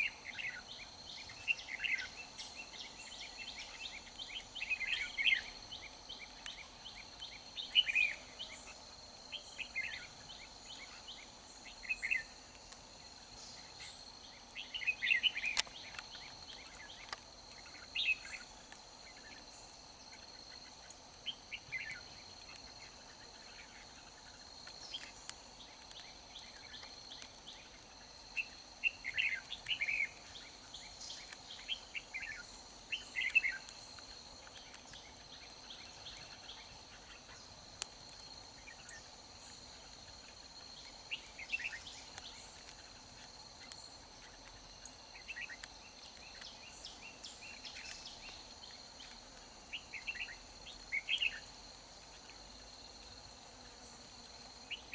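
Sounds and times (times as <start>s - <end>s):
birds singing warbled phrases: 0.0s - 12.4s, 13.4s - 18.5s, 28.4s - 33.8s, 41.1s - 42.5s, 49.7s - 51.5s
high insect drone: 0.0s - 54.9s.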